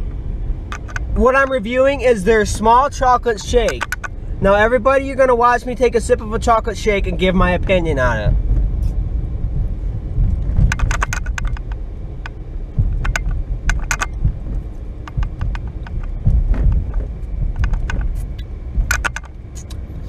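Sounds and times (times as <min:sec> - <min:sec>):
car engine idling: 0:00.0 - 0:20.0
small clicks and jingles: 0:00.7 - 0:01.5, 0:03.3 - 0:04.2, 0:10.3 - 0:19.8.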